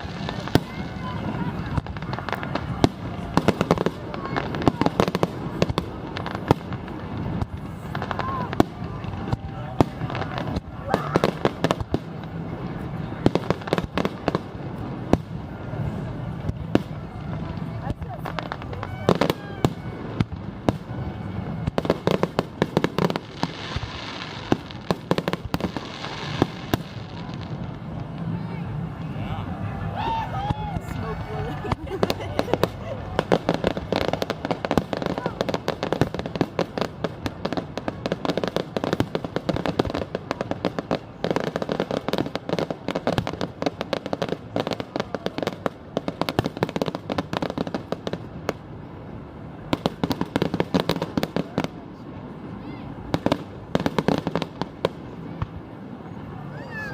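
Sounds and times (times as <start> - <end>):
fireworks bangs and crackles: 0.0 - 56.9.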